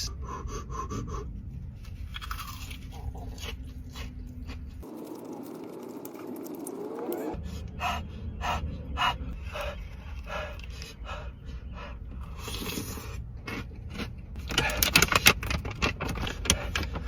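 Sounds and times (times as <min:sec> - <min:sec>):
person panting hard: 0:00.1 - 0:01.4, 0:07.4 - 0:13.1, 0:16.3 - 0:17.0.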